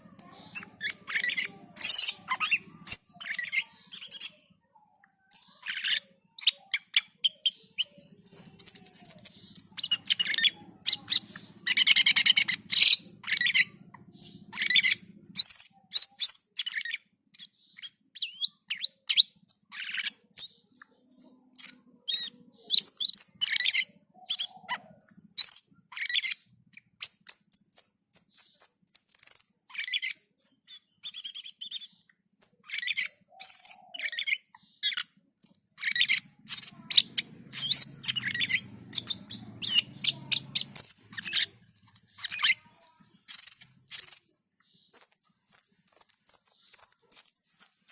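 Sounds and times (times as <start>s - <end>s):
bird singing chirps and trills: 0.0s - 47.9s.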